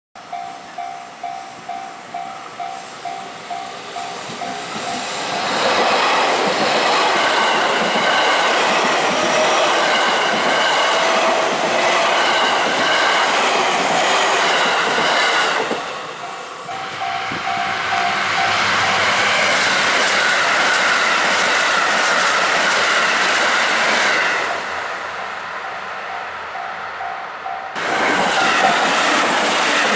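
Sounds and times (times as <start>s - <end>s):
train motor whine: 3.4s - 24.8s
level-crossing bell ringing: 16.2s - 19.1s.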